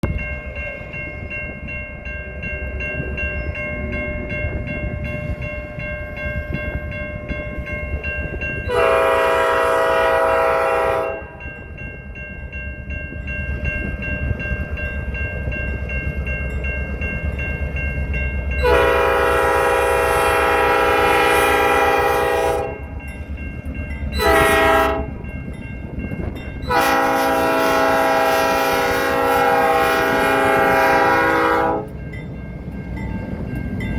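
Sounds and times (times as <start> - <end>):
passing train rumble: 0.0 - 33.9
wind: 0.0 - 33.9
train horn blasts: 8.6 - 11.4, 18.6 - 22.9, 24.2 - 25.2, 26.7 - 32.0.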